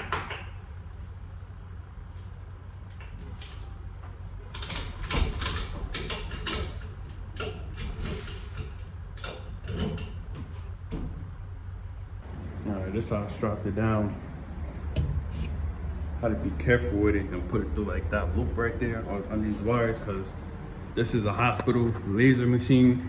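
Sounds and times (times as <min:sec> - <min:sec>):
low steady hum: 0:00.0 - 0:23.0
straps clicking and rattling: 0:04.5 - 0:10.7.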